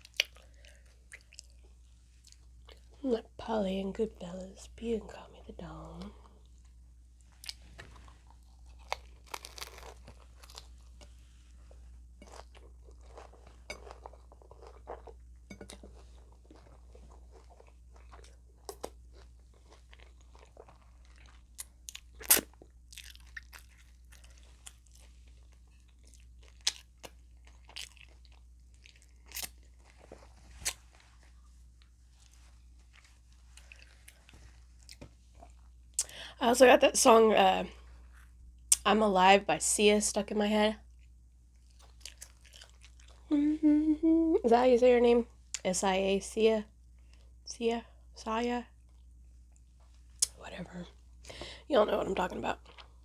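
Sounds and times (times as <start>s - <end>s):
crunching hard taco shells: 8.8s - 10.8s.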